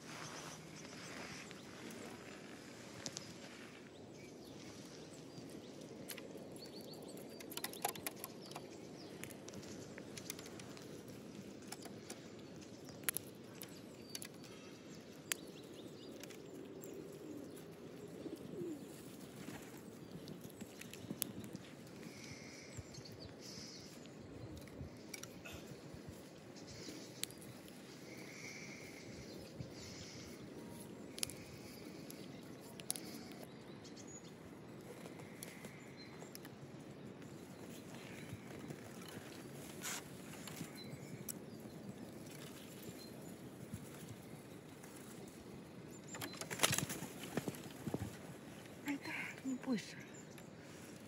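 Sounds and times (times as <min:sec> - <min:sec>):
small birds calling: 0:00.0 - 0:51.0.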